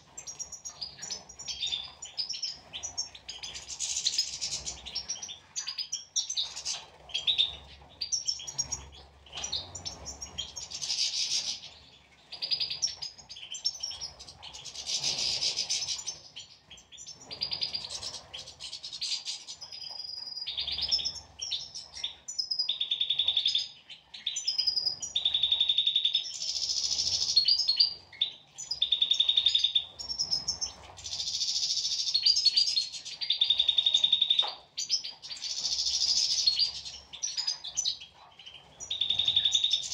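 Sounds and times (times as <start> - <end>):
finches twittering: 0.0 - 39.9.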